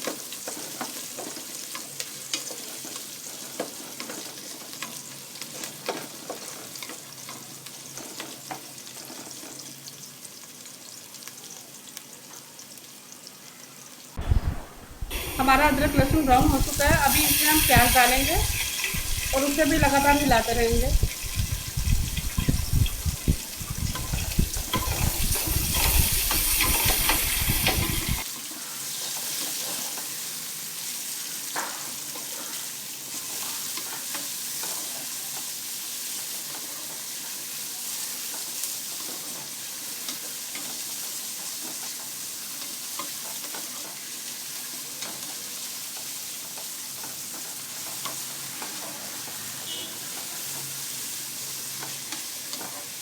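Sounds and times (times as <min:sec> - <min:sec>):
onions sizzling in hot oil: 0:00.0 - 0:53.0
spoon scraping pot: 0:15.2 - 0:28.2.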